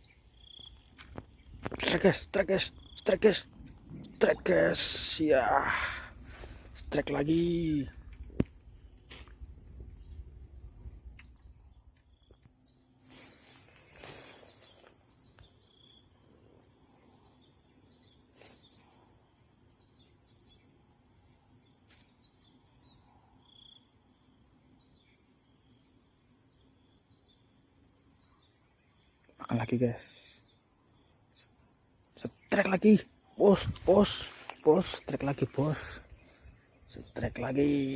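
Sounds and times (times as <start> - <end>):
insects chorus: 0.0 - 37.9.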